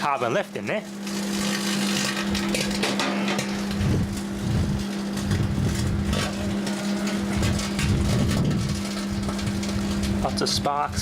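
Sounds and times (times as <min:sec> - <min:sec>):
microwave oven hum: 0:00.0 - 0:11.0
crackling sparks: 0:00.8 - 0:02.9
wind on microphone: 0:03.7 - 0:06.3, 0:07.3 - 0:10.2.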